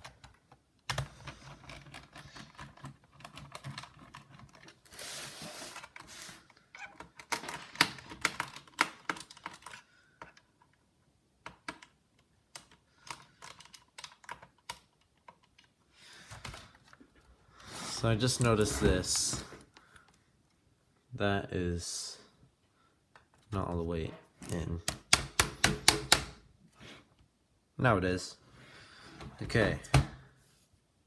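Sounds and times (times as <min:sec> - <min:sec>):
hands handling plastic case: 0:13.8 - 0:20.2
scraping rustle: 0:17.6 - 0:19.6
screwdriver clicks and taps: 0:24.8 - 0:26.4.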